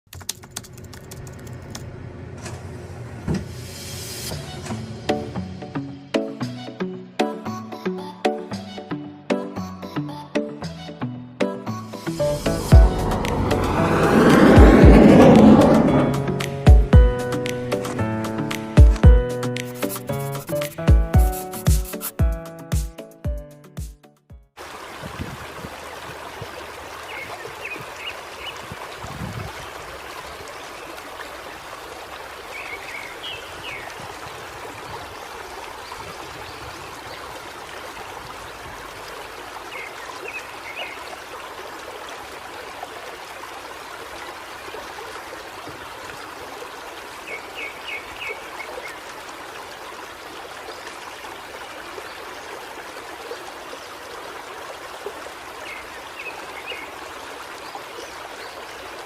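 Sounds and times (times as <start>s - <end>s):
water rushing over rocks: 24.6s - 59.0s.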